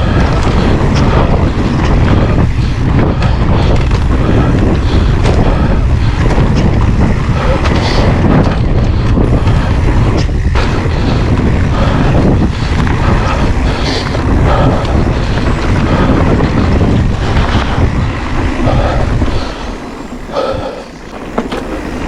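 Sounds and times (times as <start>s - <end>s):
bike clicks and rattles: 0.0s - 22.0s
wind buffeting microphone: 0.0s - 22.0s.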